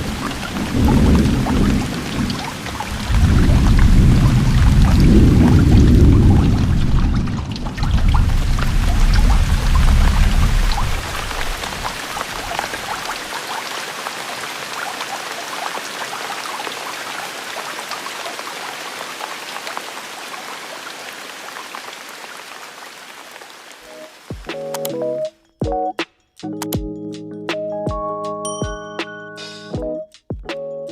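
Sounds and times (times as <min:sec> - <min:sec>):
steady rain patter: 0:00.0 - 0:24.8
deep rumble: 0:02.9 - 0:12.0.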